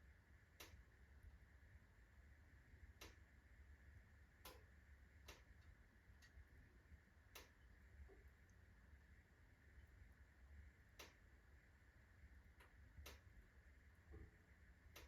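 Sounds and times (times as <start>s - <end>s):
faint low hum: 0.0s - 15.0s
logs crackling in fireplace: 4.4s - 8.7s.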